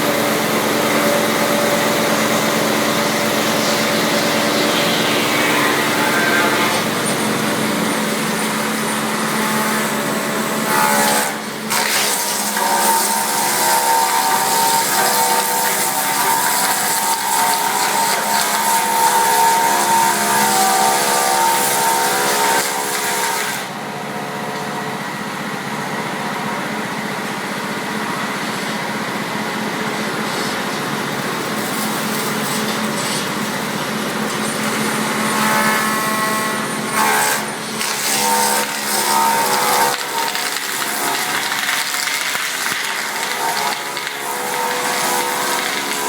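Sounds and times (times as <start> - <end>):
machine motors whining: 0.0 - 25.4.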